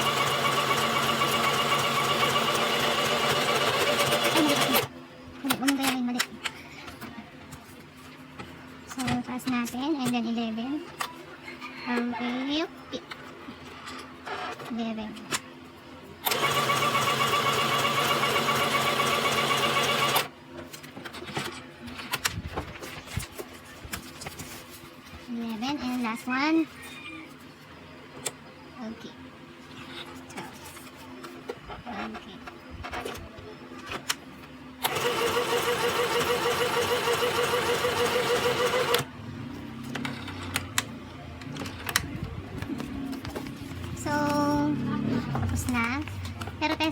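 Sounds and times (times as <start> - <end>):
sewing machine stitching: 0.0 - 4.9, 16.2 - 20.3, 34.8 - 39.1.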